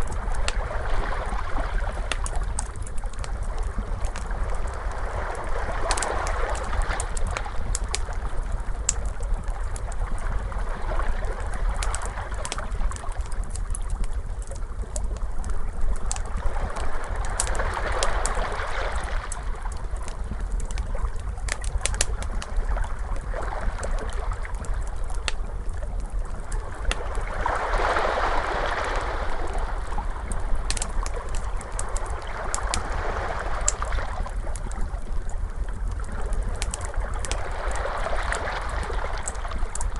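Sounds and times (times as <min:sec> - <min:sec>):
steady low rumble: 0:00.0 - 0:39.9
wood fire crackling: 0:00.0 - 0:39.9
ocean waves washing: 0:26.6 - 0:35.2.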